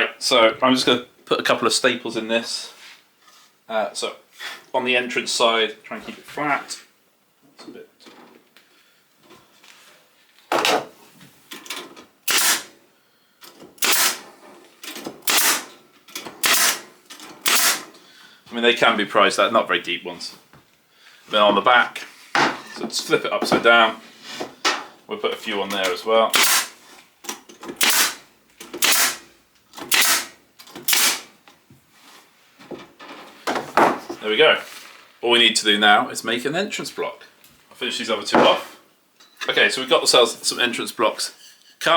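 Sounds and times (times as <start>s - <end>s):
staple gun firing: 12.3s - 12.7s, 13.8s - 14.2s, 15.3s - 15.7s, 16.4s - 16.9s, 17.5s - 17.8s, 26.4s - 26.7s, 27.8s - 28.2s, 28.8s - 29.2s, 29.8s - 30.3s, 30.9s - 31.3s.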